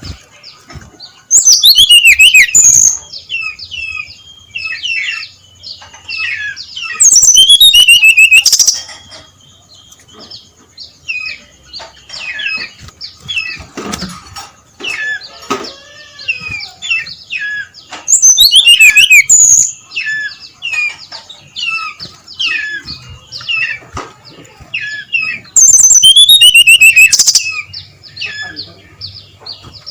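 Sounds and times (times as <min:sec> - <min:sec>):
bird whistling sharp notes: 0:01.4 - 0:03.0, 0:06.9 - 0:08.8, 0:18.1 - 0:19.8, 0:25.2 - 0:27.7.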